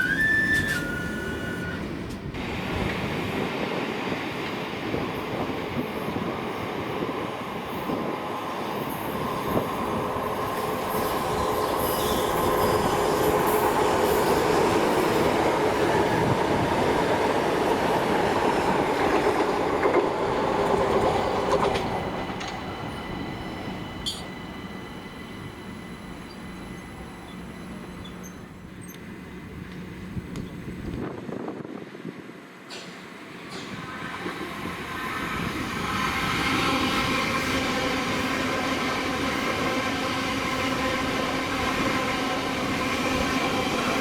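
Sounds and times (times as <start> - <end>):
faint wheel squeal: 0.0 - 2.0, 26.7 - 29.0
train rumbling along track: 0.0 - 44.0.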